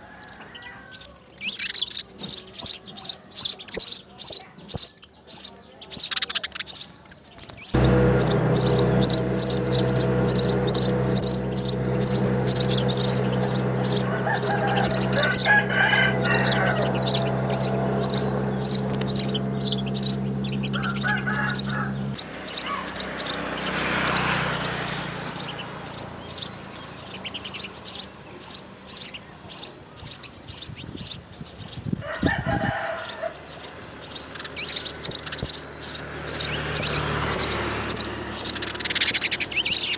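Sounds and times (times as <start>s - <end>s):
low machine hum: 7.8s - 22.2s
rooster crowing: 13.1s - 18.4s.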